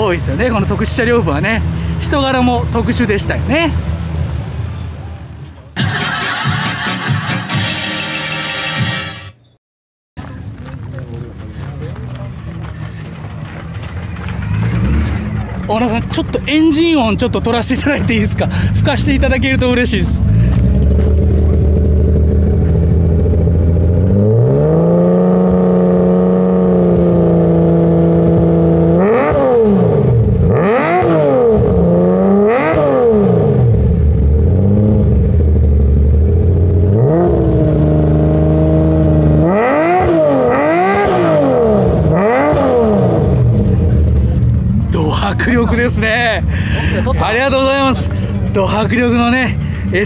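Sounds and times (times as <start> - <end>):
car engine revving: 10.2 - 50.0.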